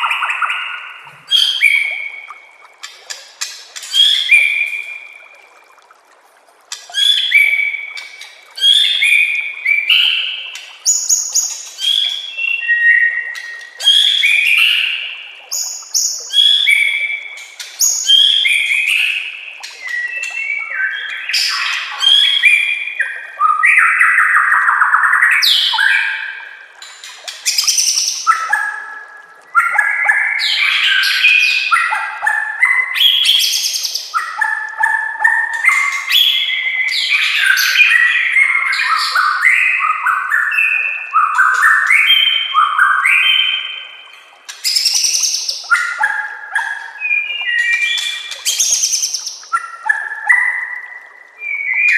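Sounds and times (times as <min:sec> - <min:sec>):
bird singing whistled phrases: 0:07.0 - 0:07.9, 0:17.8 - 0:26.2, 0:44.6 - 0:51.9.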